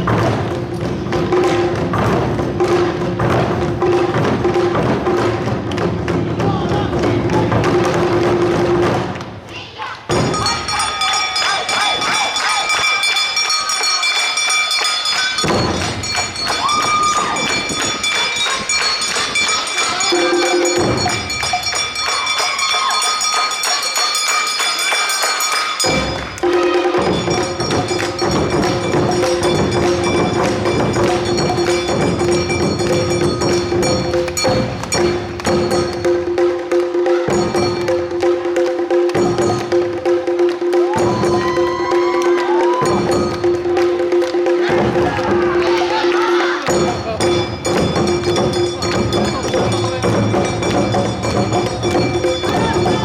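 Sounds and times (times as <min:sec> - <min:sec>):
drums beating: 0:00.0 - 0:53.0
ringing metal gong: 0:10.1 - 0:36.3
repeating melody line: 0:10.1 - 0:36.6, 0:46.7 - 0:53.0.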